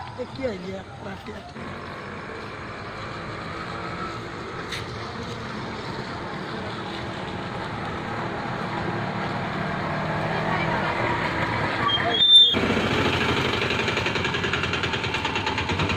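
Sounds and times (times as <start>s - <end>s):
engine running: 0.0s - 15.9s.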